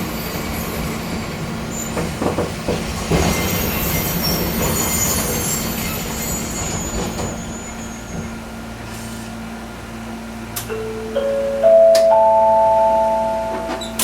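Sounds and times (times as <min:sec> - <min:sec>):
train wheels squealing: 0:00.0 - 0:09.3
railcar running rumble: 0:00.0 - 0:14.0.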